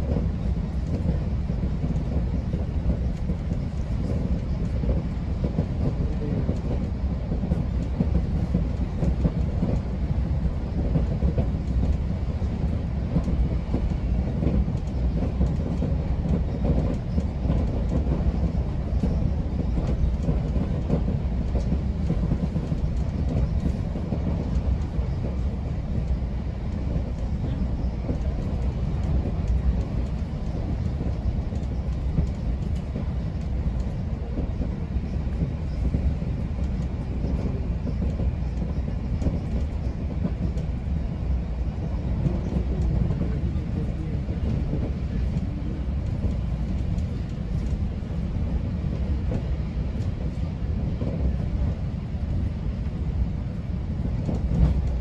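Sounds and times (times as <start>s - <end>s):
train wheels rumbling on rail: 0.0s - 55.0s
faint clicks: 26.7s - 34.0s.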